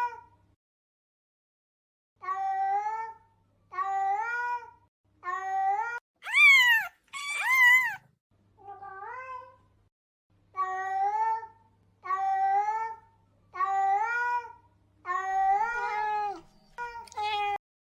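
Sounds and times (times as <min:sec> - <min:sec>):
cat meowing: 0:06.2 - 0:08.0, 0:15.1 - 0:17.6.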